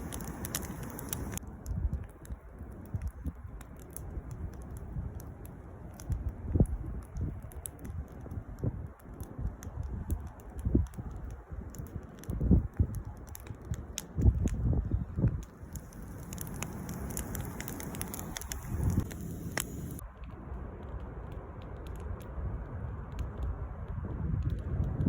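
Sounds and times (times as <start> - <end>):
campfire crackling and popping: 0.0 - 25.0
low rumble: 14.4 - 25.0.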